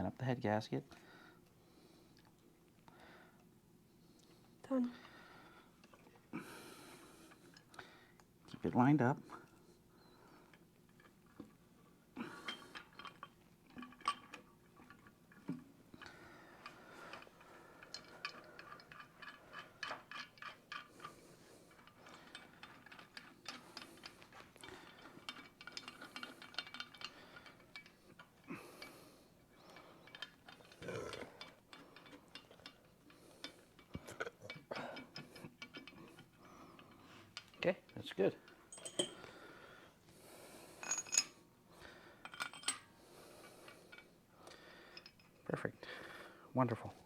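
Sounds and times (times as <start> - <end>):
metallic clinks and taps: 12.4 - 29.0, 29.6 - 39.3, 40.8 - 41.4, 42.2 - 42.9.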